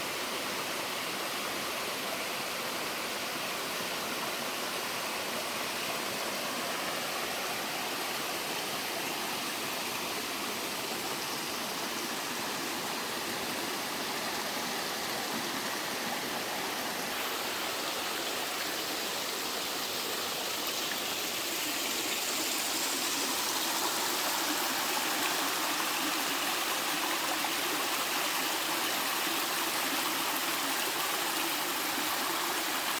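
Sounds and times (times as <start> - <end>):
water rushing down rocks: 13.9 - 33.0.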